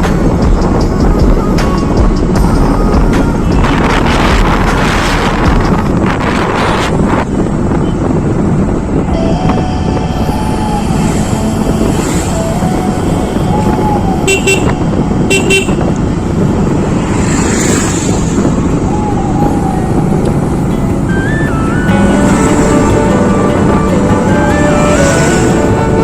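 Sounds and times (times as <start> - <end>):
wind and road noise: 0.0 - 26.0
short horn beeps: 14.3 - 15.9.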